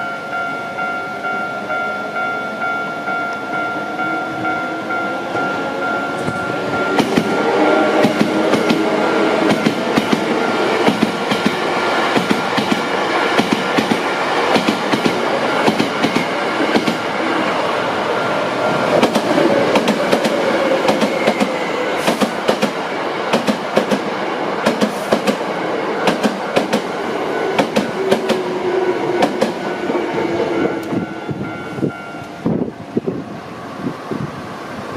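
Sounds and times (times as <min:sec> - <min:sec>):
steady high tone: 0:00.0 - 0:22.0, 0:25.4 - 0:34.8
train wheels clacking over rail joints: 0:06.2 - 0:17.1, 0:19.0 - 0:26.9, 0:27.6 - 0:28.5.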